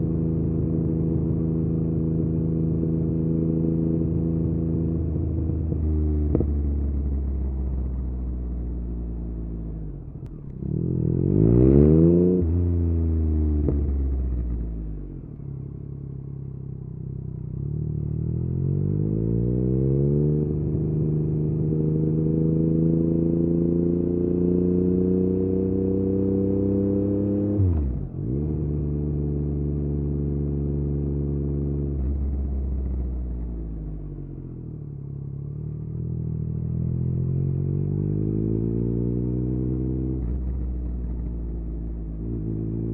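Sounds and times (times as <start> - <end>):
motorcycle engine revving: 9.8 - 15.2, 17.5 - 34.0, 34.6 - 42.9.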